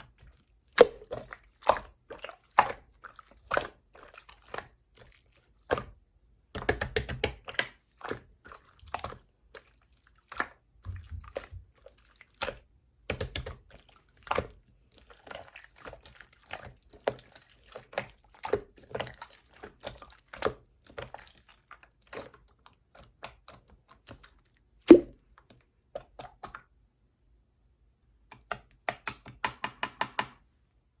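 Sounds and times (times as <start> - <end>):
sticky clicks and pops: 28.3 - 30.4.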